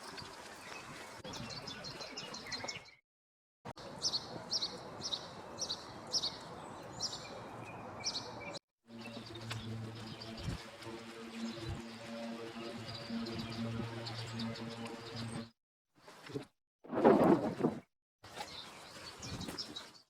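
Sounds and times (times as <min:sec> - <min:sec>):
outdoor background noise: 0:00.0 - 0:03.0, 0:03.7 - 0:20.0
low steady hum: 0:08.9 - 0:15.5.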